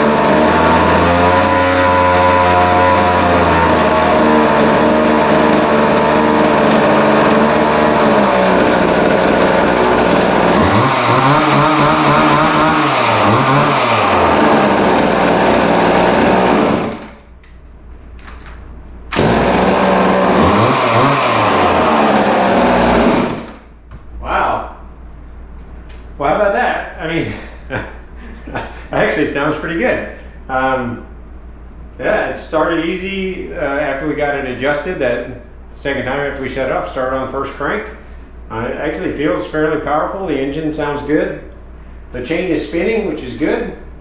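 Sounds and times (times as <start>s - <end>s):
chainsaw engine revving: 0.0s - 17.2s, 19.1s - 23.7s.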